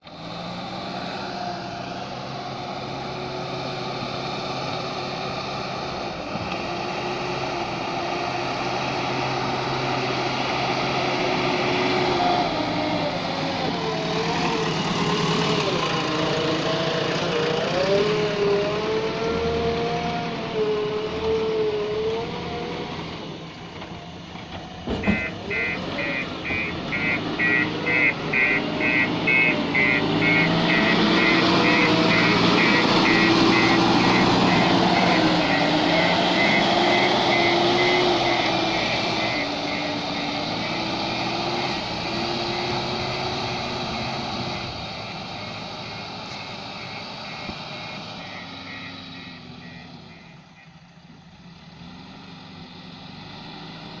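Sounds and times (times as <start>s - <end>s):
diesel engine running: 0.0s - 54.0s
reversing alarm beeping: 25.0s - 50.8s.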